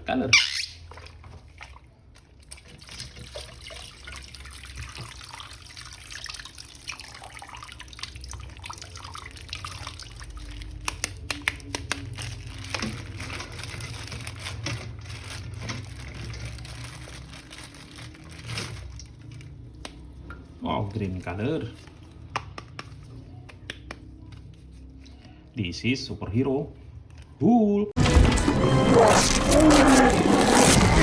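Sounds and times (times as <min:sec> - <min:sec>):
water running and splashing: 0:00.9 - 0:10.8.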